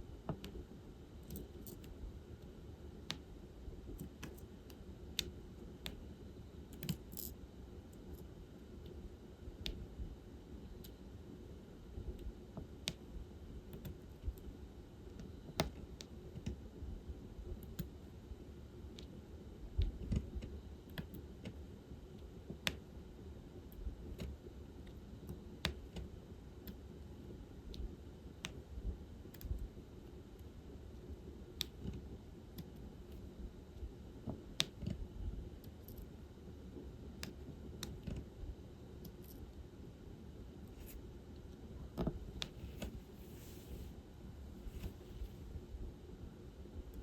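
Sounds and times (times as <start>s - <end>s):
low steady hum: 0.0s - 47.0s
drill pen clicking and tapping beads: 6.7s - 7.4s.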